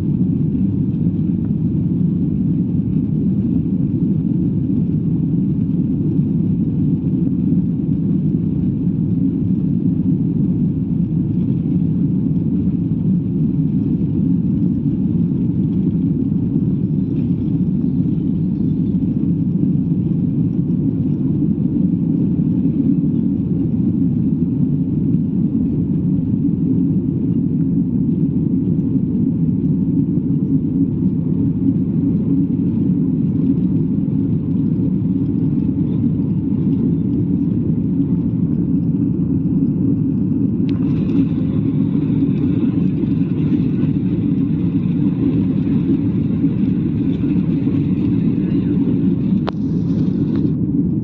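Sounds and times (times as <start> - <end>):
jet engine cabin drone: 0.0 - 51.0.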